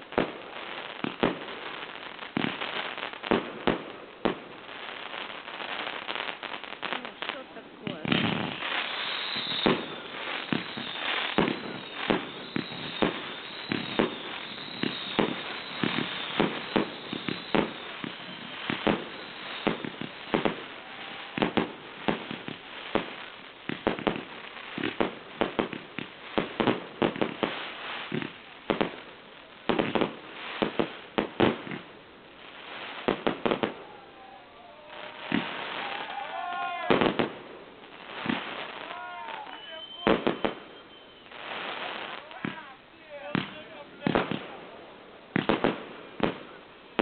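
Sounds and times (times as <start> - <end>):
fireworks bangs: 0.0 - 47.0
fireworks crackling: 0.0 - 47.0
high whistles: 8.5 - 21.7, 37.9 - 42.4.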